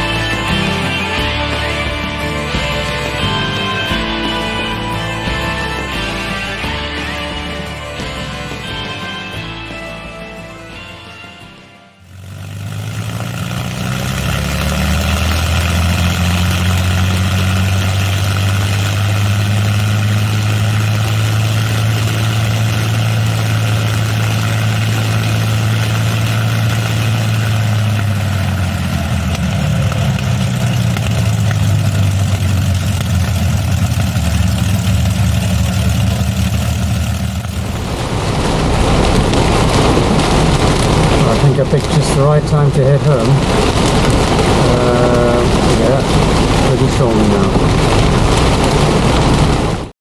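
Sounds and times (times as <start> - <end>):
car engine running: 12.0 - 49.9
road noise hum: 12.0 - 49.9.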